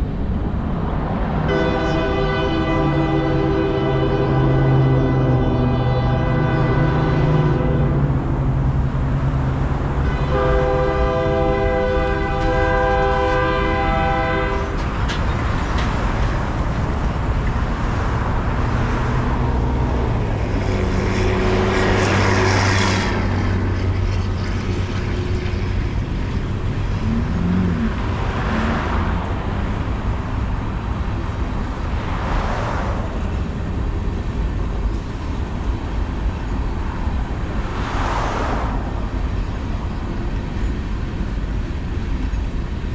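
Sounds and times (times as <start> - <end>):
train rumble: 0.0 - 42.9
vehicles swishing past: 0.0 - 42.9
locomotive horn: 1.4 - 8.7, 9.8 - 15.0.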